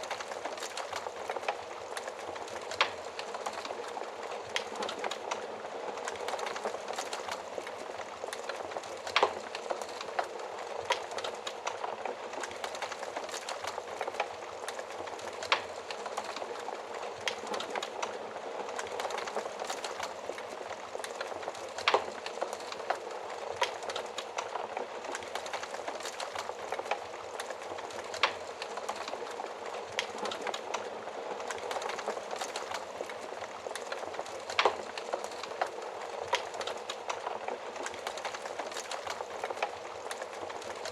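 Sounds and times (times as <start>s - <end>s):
wood fire crackling and popping: 0.0s - 40.9s.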